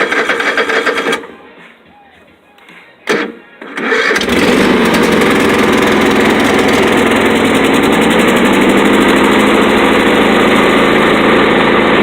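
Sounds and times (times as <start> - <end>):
engine running on choke: 0.0 - 1.2, 3.7 - 12.0.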